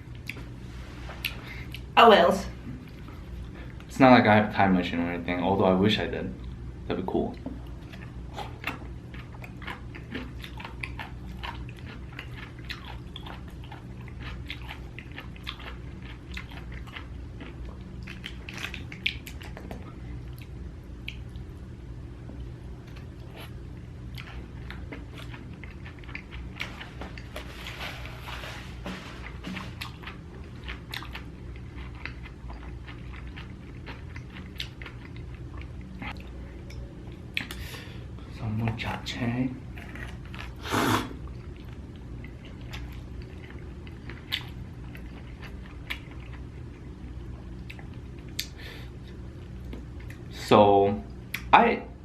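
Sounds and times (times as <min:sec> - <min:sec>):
close chewing and biting: 0:07.6 - 0:21.4, 0:22.8 - 0:28.5, 0:29.1 - 0:36.3, 0:41.3 - 0:48.6.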